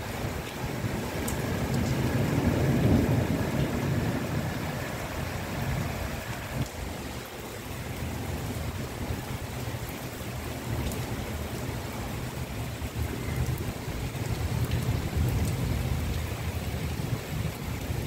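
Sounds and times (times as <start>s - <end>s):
heavy rain on rooftops: 0.0s - 18.0s.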